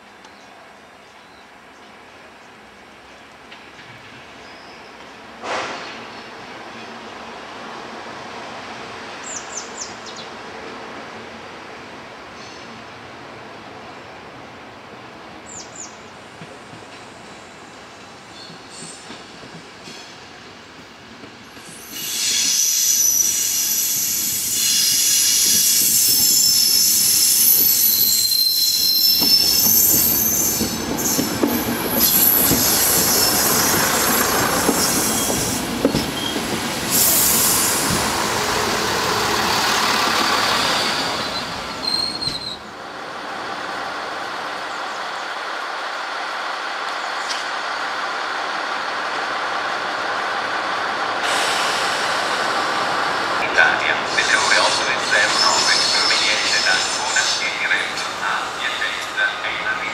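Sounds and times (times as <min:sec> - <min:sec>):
railcar running past: 0:00.0 - 0:59.9
railcar wheels squealing: 0:18.3 - 0:20.2, 0:21.4 - 0:42.7, 0:54.0 - 0:59.9
diesel locomotive engine running: 0:37.8 - 0:41.4.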